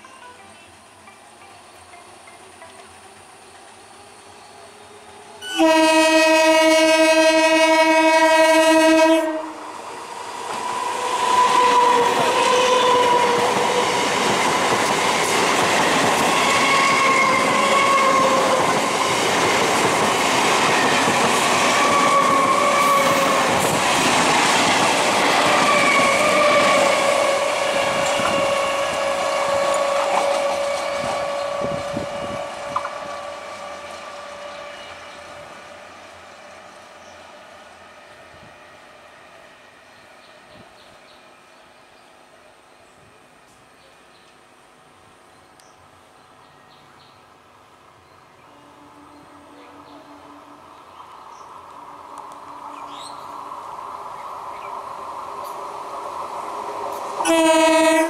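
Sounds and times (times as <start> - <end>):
train motor whine: 3.2 - 36.1, 56.4 - 58.0
train horn blast: 5.4 - 9.7, 11.3 - 14.0, 16.3 - 18.7, 21.6 - 23.5, 25.6 - 35.2, 48.4 - 50.6, 57.2 - 58.0
train wheels rattling over rails: 9.8 - 35.8.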